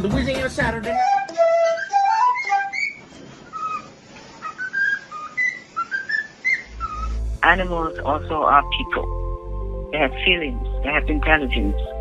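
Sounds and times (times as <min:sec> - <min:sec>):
whistled tune: 0:00.8 - 0:07.2.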